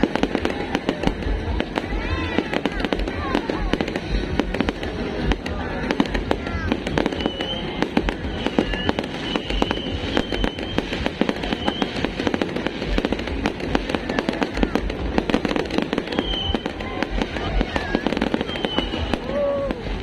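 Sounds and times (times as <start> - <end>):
crowd murmuring: 0.0 - 20.0
fireworks bangs and crackling: 0.0 - 20.0
firework whistles: 6.4 - 13.3, 14.5 - 20.0.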